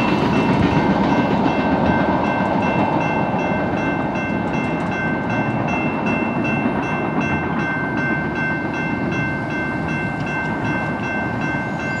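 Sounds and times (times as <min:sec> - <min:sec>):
freight train wheels rumbling: 0:00.0 - 0:12.0
high ringing tone: 0:05.1 - 0:12.0.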